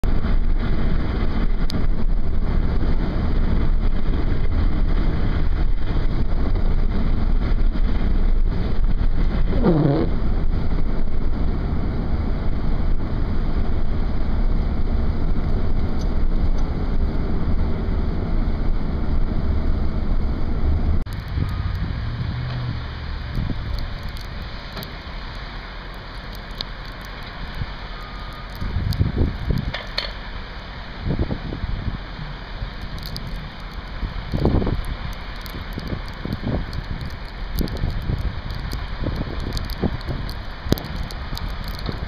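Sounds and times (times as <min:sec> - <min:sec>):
wind buffeting microphone: 0:00.1 - 0:24.9, 0:28.5 - 0:30.0, 0:31.0 - 0:42.0.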